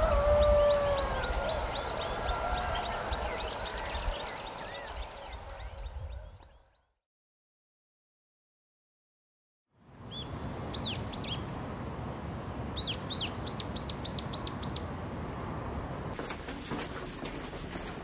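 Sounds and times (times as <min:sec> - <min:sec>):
steady high-pitched buzz: 0:09.8 - 0:16.2
bird chirping: 0:10.0 - 0:16.2.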